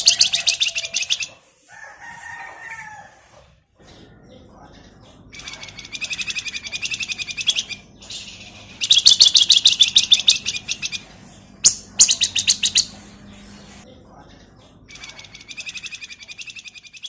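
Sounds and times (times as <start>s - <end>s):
songbird chattering trills: 0.0s - 1.3s, 5.3s - 13.8s, 14.9s - 17.0s.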